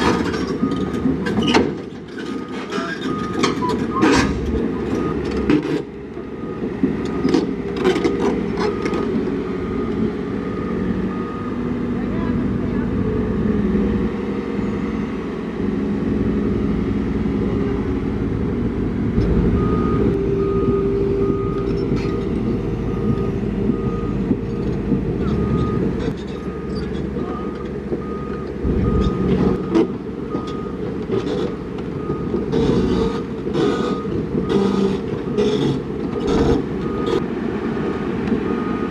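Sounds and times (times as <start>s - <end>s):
diesel engine under load: 0.0s - 38.9s
reversing alarm beeping: 2.3s - 4.1s, 4.9s - 5.4s, 8.6s - 11.8s, 19.2s - 37.2s, 38.5s - 38.9s.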